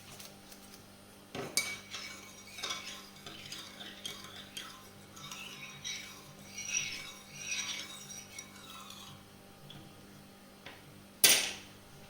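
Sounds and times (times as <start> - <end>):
stirring in a bowl: 1.4 - 10.1
utensil clinking against bowl: 1.5 - 9.2.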